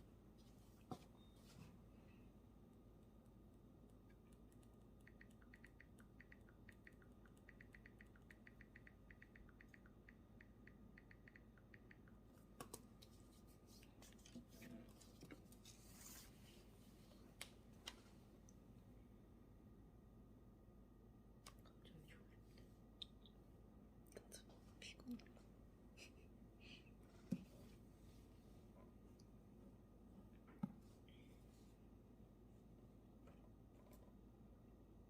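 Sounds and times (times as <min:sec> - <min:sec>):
light taps and clicks: 0:04.0 - 0:13.2.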